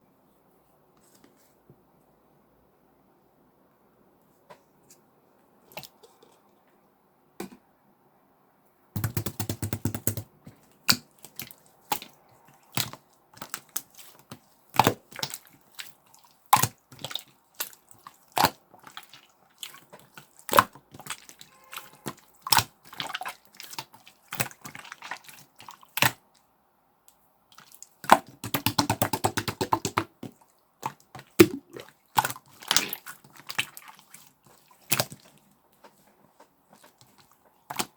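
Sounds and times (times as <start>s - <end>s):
slime squeezed wet pops: 9.0s - 11.2s, 28.0s - 33.8s
slime air pockets crackling: 27.6s - 37.9s.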